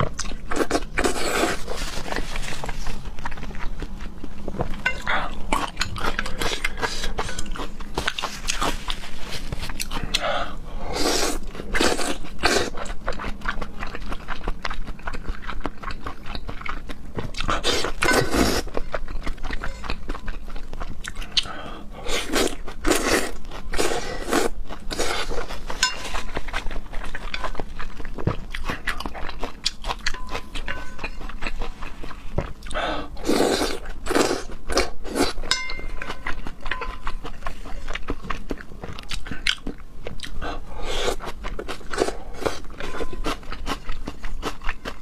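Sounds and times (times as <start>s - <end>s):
person biting and chewing food: 11.0s - 45.0s.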